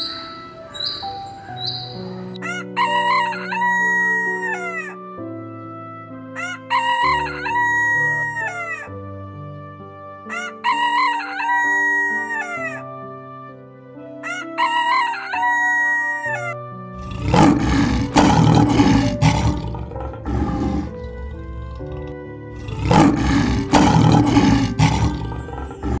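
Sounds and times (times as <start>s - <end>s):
background music with held notes: 0.0s - 26.0s
rooster crowing: 2.2s - 4.9s, 6.4s - 8.9s, 10.3s - 12.8s, 14.2s - 19.6s
lion roaring: 17.0s - 26.0s.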